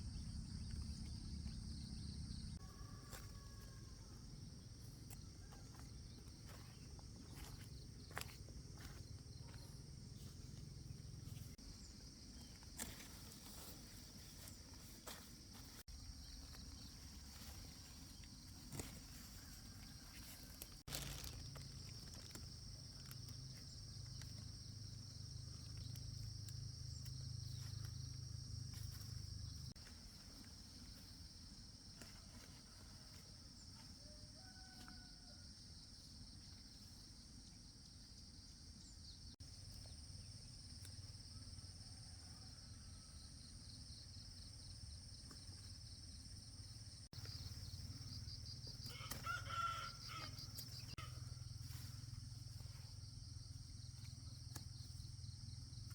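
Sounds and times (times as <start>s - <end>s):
rooster crowing: 2.6s - 4.4s, 19.3s - 20.8s, 34.0s - 35.6s, 41.6s - 43.4s, 48.8s - 51.3s.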